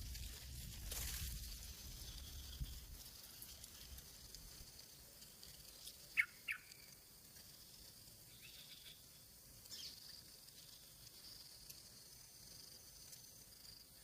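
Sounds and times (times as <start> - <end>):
insects droning: 0.0 - 14.0
sharp bird chirps: 5.9 - 7.0.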